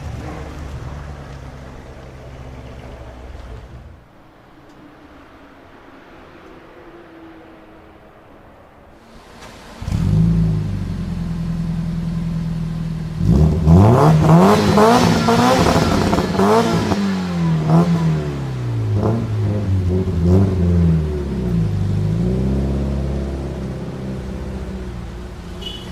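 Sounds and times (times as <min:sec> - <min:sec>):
sports car engine revving: 0:00.0 - 0:04.1, 0:09.0 - 0:25.8
sharp exhaust cracks: 0:08.9 - 0:21.0.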